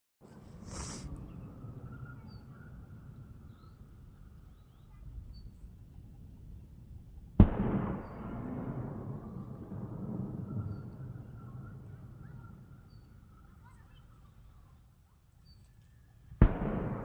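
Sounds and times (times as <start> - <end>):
wind rumble on microphone: 0.2 - 17.0
faint bird chirps: 0.7 - 6.7, 10.5 - 14.8.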